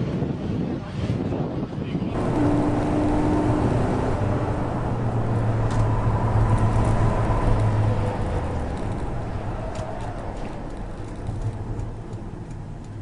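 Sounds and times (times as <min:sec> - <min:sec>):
road and wind noise: 0:00.0 - 0:13.0
car engine running: 0:02.2 - 0:13.0.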